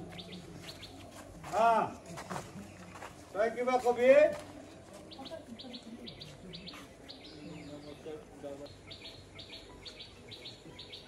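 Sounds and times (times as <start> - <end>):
bird chirping: 0.0 - 1.0, 4.6 - 11.0
murmur of voices: 0.0 - 11.0.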